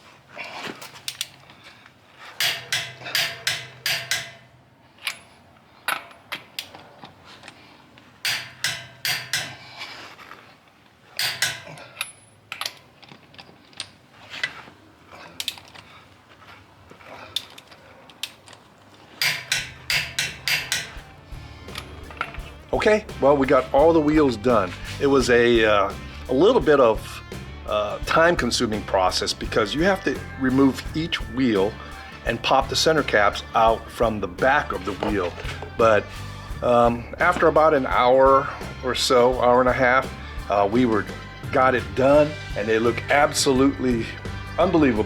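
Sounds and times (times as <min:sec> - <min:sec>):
hand ratchet clicking: 0:02.4 - 0:06.8, 0:08.2 - 0:09.8, 0:11.2 - 0:14.0, 0:19.2 - 0:22.6.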